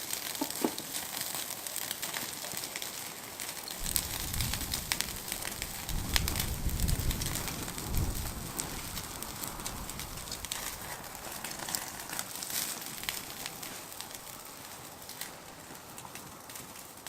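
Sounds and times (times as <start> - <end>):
meat sizzling and crackling: 0.0 - 17.0.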